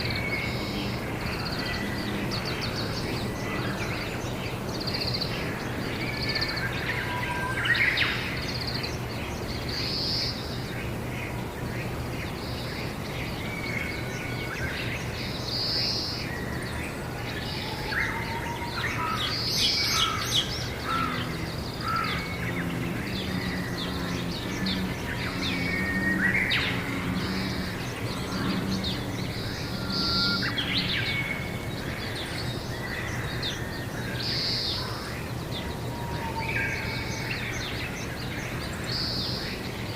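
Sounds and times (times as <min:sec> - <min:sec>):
birds calling and chirping: 0:00.0 - 0:39.9
steady low hum: 0:18.8 - 0:34.2.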